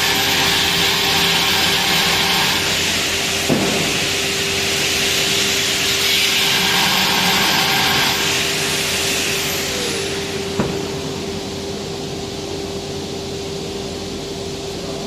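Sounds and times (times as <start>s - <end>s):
power tool running: 0.0s - 11.6s.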